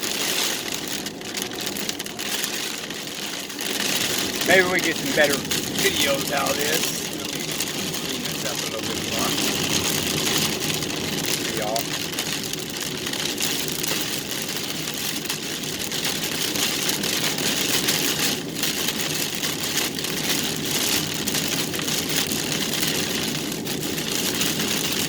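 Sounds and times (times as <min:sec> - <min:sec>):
car engine running: 0:00.0 - 0:14.9
rain hitting car: 0:00.0 - 0:25.0
tyre noise on wet road: 0:00.0 - 0:25.0.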